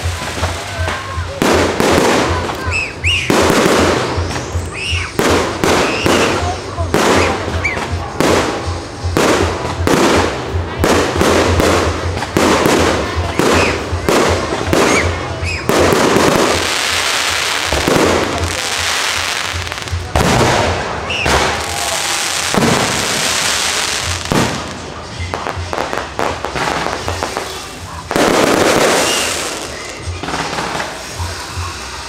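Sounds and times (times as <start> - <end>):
fireworks bangs: 0.0 - 31.7
fireworks crackling: 0.0 - 32.0
small fireworks pops: 0.0 - 32.0.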